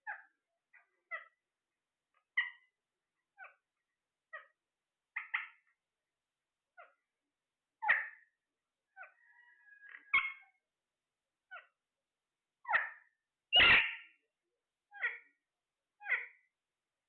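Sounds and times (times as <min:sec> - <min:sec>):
parrot calling: 0:07.8 - 0:08.2, 0:08.9 - 0:10.6, 0:12.6 - 0:14.2, 0:14.9 - 0:15.4, 0:16.0 - 0:16.5.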